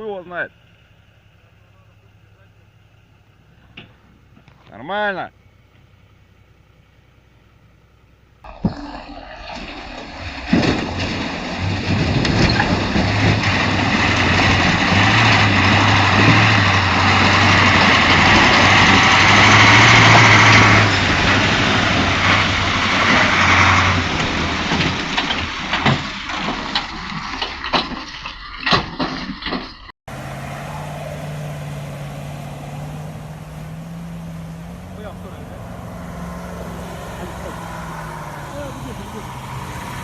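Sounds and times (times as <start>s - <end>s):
heavy truck engine under load: 9.4s - 40.0s.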